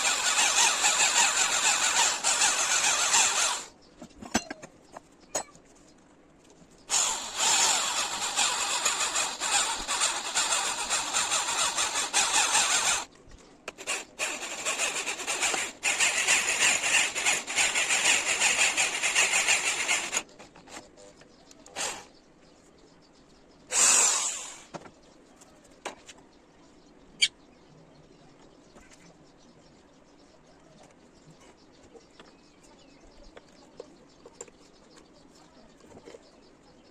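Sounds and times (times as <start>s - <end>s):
power tool cutting metal: 0.0s - 3.7s, 6.9s - 13.1s, 13.8s - 20.2s, 21.8s - 22.1s, 23.7s - 24.7s.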